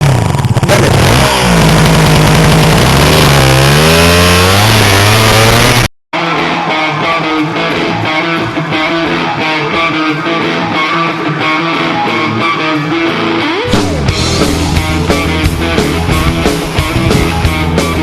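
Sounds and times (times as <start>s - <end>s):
dirt bike engine revving: 0.0s - 5.9s, 13.0s - 18.0s
rock music with electric guitar: 3.6s - 18.0s.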